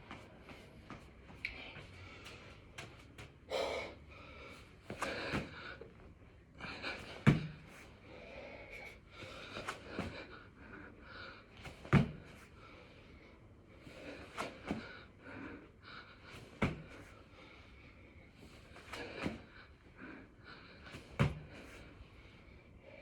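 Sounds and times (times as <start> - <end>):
man breathing hard and gasping: 3.4 - 11.8
body thudding on floor: 7.3 - 7.6, 11.9 - 12.3, 16.6 - 17.0, 21.0 - 21.8.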